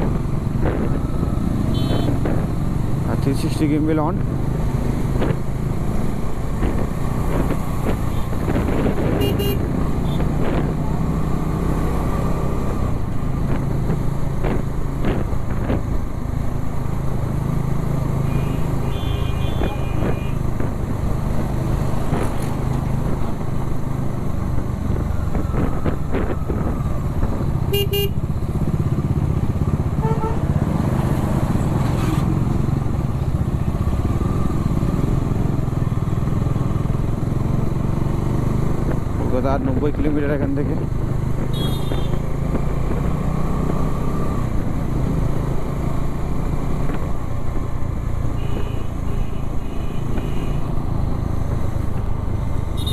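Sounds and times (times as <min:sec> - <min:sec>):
vehicle horn toots: 0:01.7 - 0:02.2, 0:09.2 - 0:10.2, 0:18.3 - 0:20.4, 0:27.7 - 0:28.2, 0:30.0 - 0:30.4, 0:41.5 - 0:42.2, 0:48.4 - 0:50.6
wind rush: 0:04.3 - 0:11.0.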